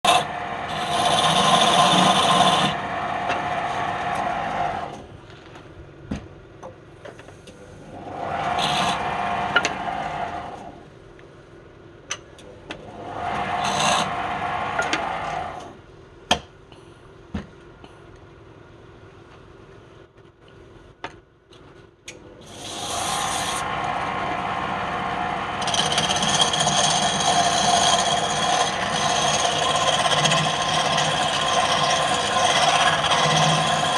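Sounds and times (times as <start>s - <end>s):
power tool rasping wood: 0.0s - 5.0s, 8.0s - 10.8s, 12.9s - 15.7s, 22.4s - 33.9s.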